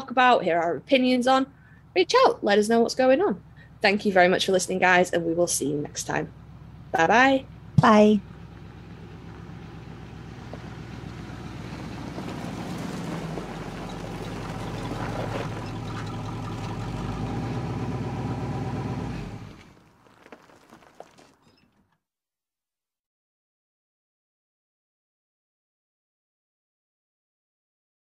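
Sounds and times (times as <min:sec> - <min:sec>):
car engine running: 0:00.0 - 0:21.4.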